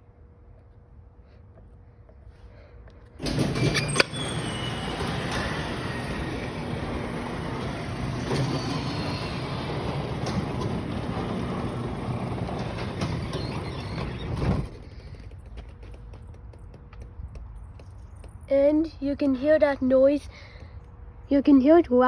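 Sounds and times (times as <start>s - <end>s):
garage door rumbling on tracks: 3.2s - 15.5s.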